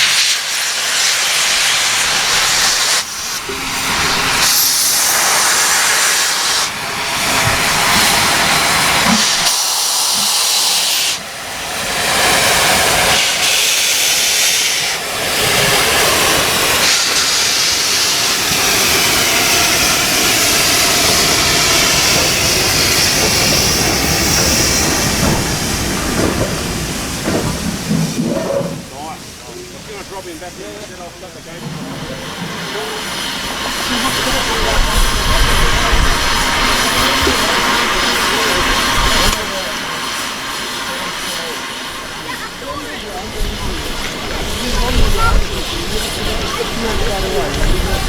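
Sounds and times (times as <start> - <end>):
steam locomotive hissing steam: 0.0 - 48.0.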